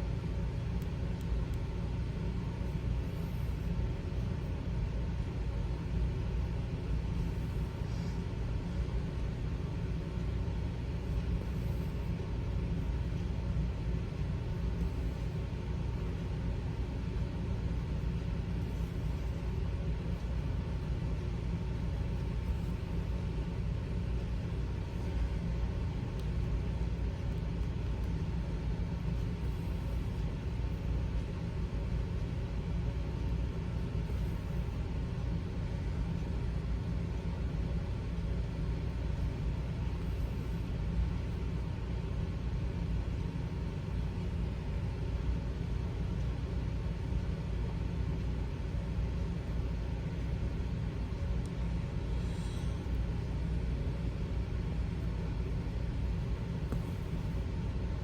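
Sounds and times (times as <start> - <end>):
faint even hum: 0.0 - 58.0
steady low rumble: 0.0 - 58.0.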